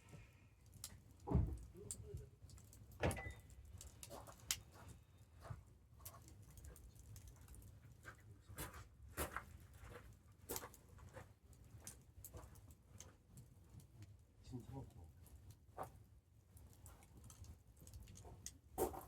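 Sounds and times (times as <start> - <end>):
campfire crackling and popping: 16.6 - 19.0.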